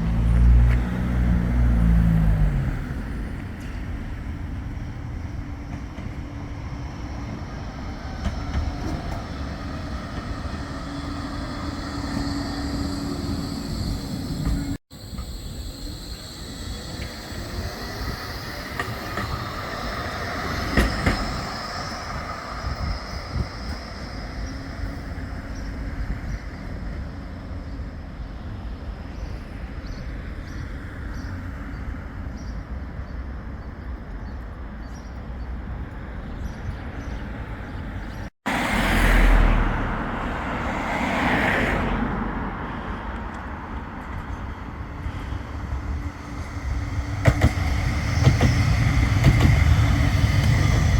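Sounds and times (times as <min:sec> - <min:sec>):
tram running on track: 0:00.0 - 0:50.9
high wheel squeal: 0:06.2 - 0:28.1, 0:44.8 - 0:50.9.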